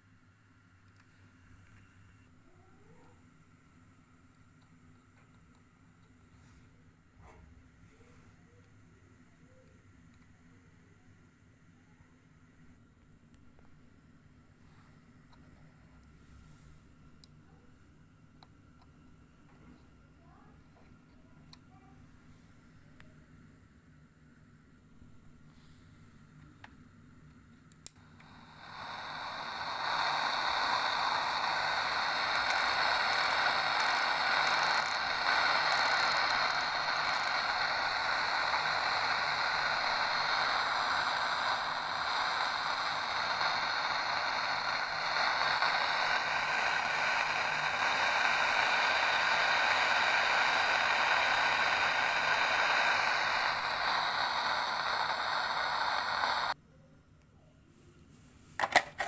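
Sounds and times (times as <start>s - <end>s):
radio click: 27.8s - 56.6s, 58.6s - 59.0s
radio static hiss: 27.9s - 56.6s.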